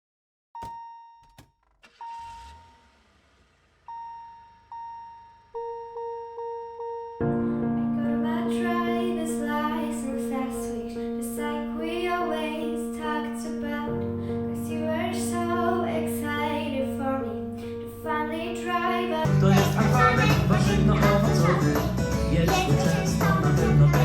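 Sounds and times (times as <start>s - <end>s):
fuller musical accompaniment: 7.2s - 24.0s
woman singing: 7.8s - 24.0s
keyboard chord: 19.3s - 24.0s.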